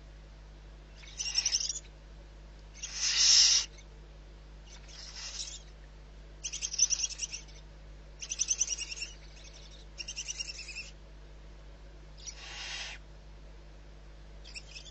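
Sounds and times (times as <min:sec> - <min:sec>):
chattering bird calls: 0:01.0 - 0:01.8, 0:02.8 - 0:03.8, 0:04.7 - 0:05.7, 0:06.4 - 0:07.6, 0:08.2 - 0:10.9, 0:14.5 - 0:14.9
hissing owl screech: 0:01.0 - 0:01.8, 0:02.8 - 0:03.8, 0:04.7 - 0:05.7, 0:12.2 - 0:13.0, 0:14.5 - 0:14.9.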